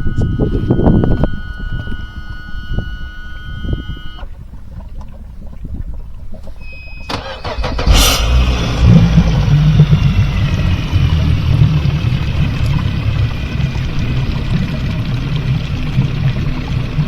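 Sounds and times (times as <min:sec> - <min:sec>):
short beep: 0:00.0 - 0:04.3, 0:06.4 - 0:10.7
boat engine cranking and idling: 0:00.0 - 0:17.0.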